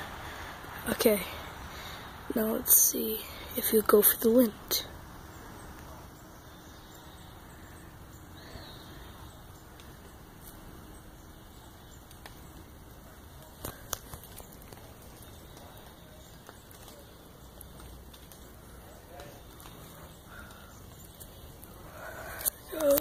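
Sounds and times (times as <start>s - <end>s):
outdoor background hiss: 0.0s - 23.0s
faint ticks: 11.9s - 12.6s, 19.2s - 23.0s.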